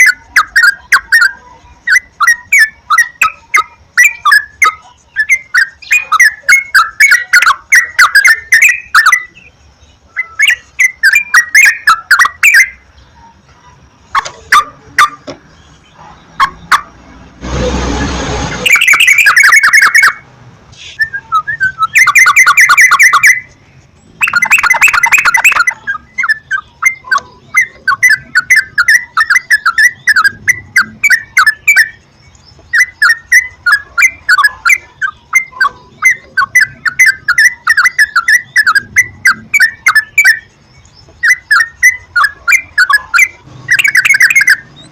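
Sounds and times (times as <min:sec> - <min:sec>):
bird chattering calls: 0:00.0 - 0:17.4, 0:18.5 - 0:44.9
hiss burst: 0:17.4 - 0:18.7.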